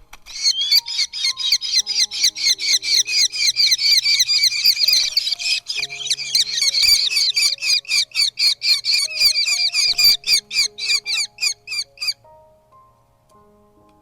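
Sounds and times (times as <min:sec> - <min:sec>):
soft background music: 0:00.0 - 0:14.0
falcon squawking calls: 0:00.3 - 0:12.2.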